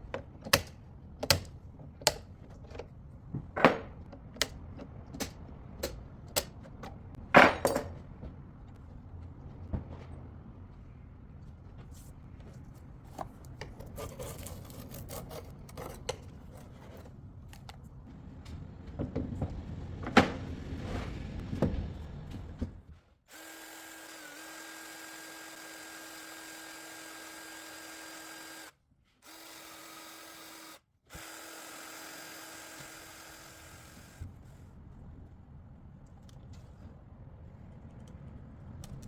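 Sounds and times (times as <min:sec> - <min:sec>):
small electric power tool whining: 0:23.3 - 0:34.2.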